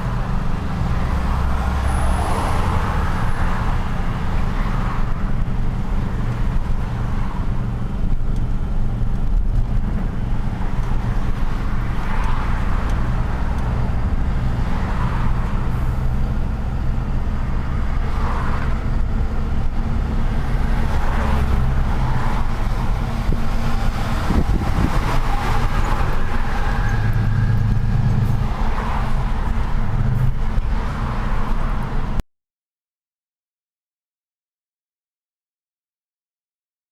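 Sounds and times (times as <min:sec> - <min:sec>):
road and traffic noise: 0:00.0 - 0:32.2.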